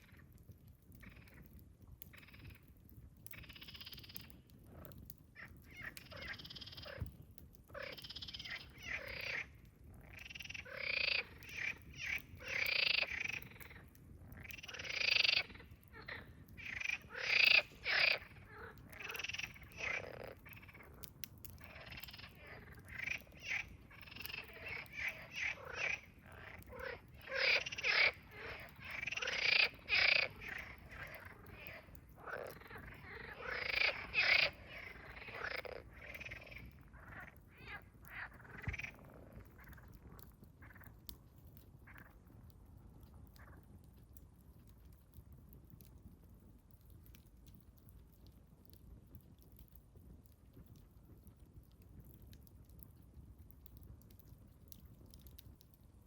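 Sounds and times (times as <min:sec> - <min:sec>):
frogs croaking: 0:01.0 - 0:01.5, 0:03.3 - 0:07.1, 0:07.7 - 0:41.1, 0:41.9 - 0:42.2.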